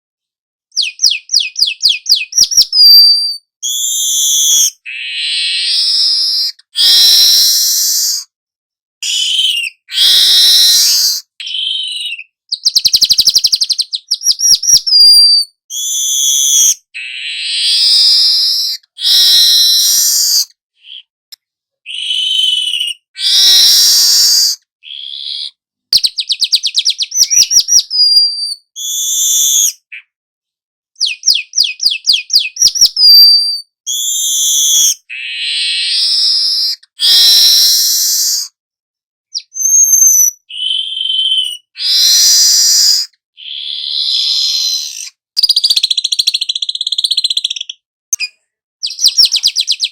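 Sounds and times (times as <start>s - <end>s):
weaver bird singing: 0.7s - 8.2s, 9.0s - 21.1s, 21.9s - 30.2s, 31.0s - 38.4s, 39.3s - 49.9s.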